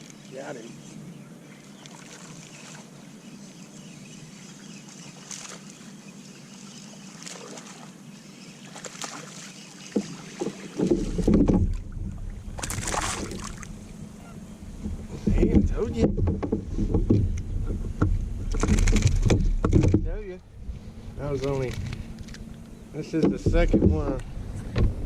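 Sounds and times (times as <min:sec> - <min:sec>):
wind and water hiss: 0:00.0 - 0:25.0
water splashing: 0:01.8 - 0:02.9, 0:04.9 - 0:05.8, 0:06.5 - 0:08.0, 0:08.6 - 0:20.2
wind rumble on microphone: 0:10.8 - 0:25.0.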